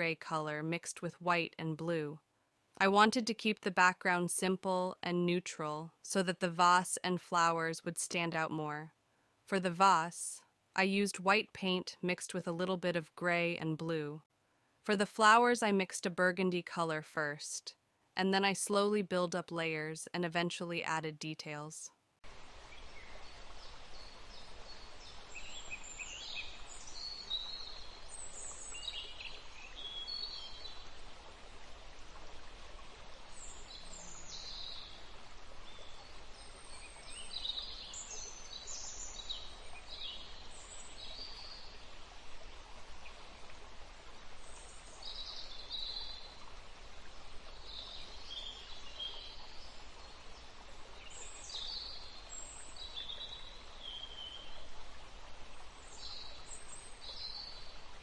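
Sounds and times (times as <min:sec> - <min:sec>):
steady background hiss: 0:22.2 - 0:58.0
songbirds chirping: 0:22.7 - 0:32.3, 0:33.0 - 0:42.2, 0:43.0 - 0:54.7, 0:55.5 - 0:58.0.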